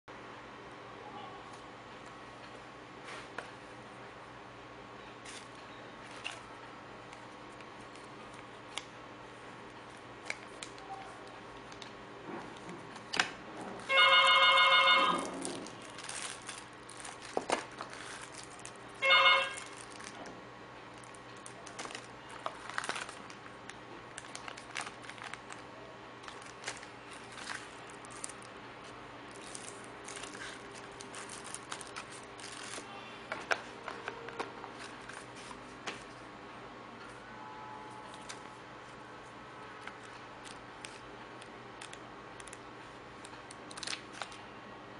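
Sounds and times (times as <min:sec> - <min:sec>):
phone electronic tone jingle: 0:13.9 - 0:15.3, 0:19.0 - 0:19.7.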